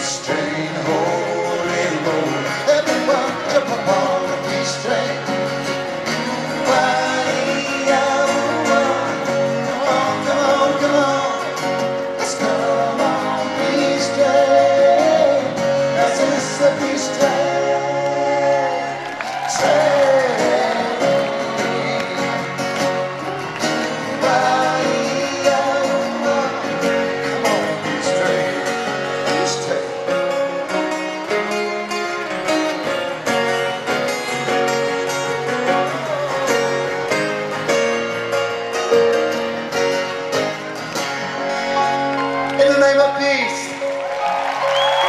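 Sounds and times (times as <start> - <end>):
person singing: 0.0 - 32.3, 34.4 - 37.4
live band with guitar: 0.0 - 45.0.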